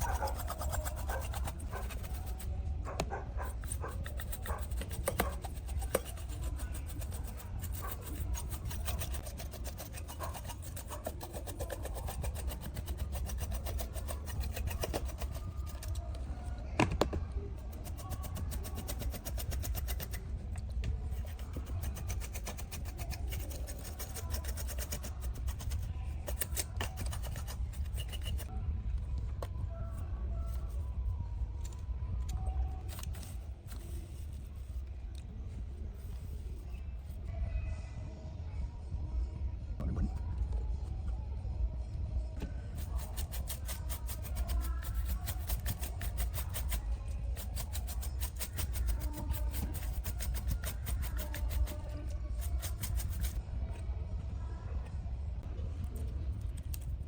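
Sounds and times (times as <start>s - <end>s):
scraping and rubbing of parts: 0.0s - 28.5s, 29.1s - 37.3s, 42.4s - 53.4s.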